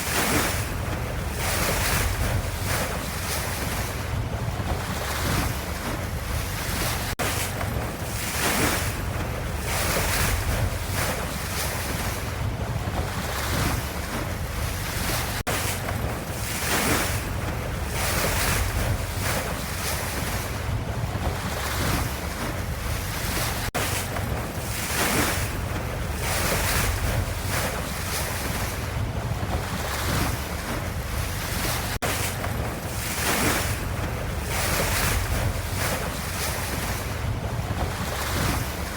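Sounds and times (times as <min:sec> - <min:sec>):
ocean waves washing: 0:00.0 - 0:38.9.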